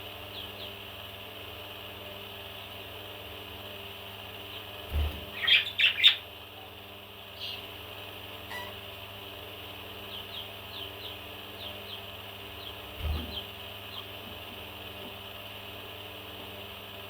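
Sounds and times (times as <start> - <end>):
parrot chirping: 5.3 - 6.2.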